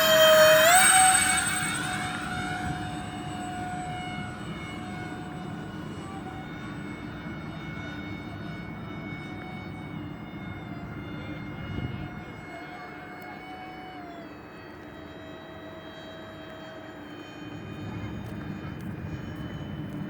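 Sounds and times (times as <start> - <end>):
model airplane electric fans whining: 0.0 - 20.0.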